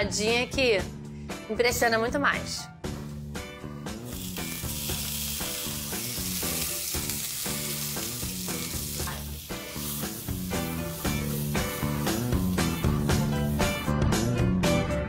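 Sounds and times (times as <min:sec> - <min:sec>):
meat sizzling in a frying pan: 0:04.0 - 0:13.9.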